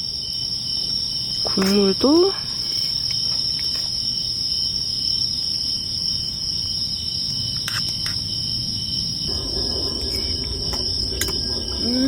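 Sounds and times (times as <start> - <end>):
night insects trilling: 8.9 - 12.0
low background rumble: 9.3 - 12.0.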